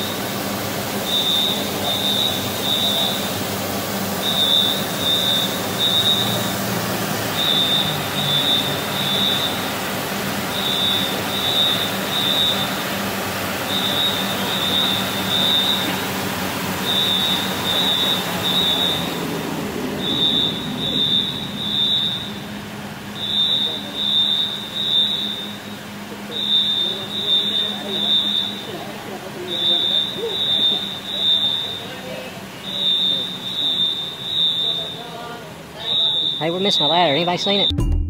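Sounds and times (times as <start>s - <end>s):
low mechanical hum: 0.0s - 37.8s
smoke alarm beeping: 1.0s - 3.5s, 4.1s - 6.7s, 7.3s - 12.9s, 13.6s - 16.2s, 16.8s - 19.2s, 20.0s - 28.9s, 29.5s - 37.8s.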